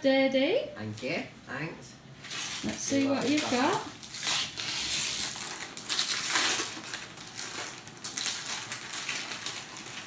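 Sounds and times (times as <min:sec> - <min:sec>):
wrapping paper crinkling and tearing: 0:02.2 - 0:10.0.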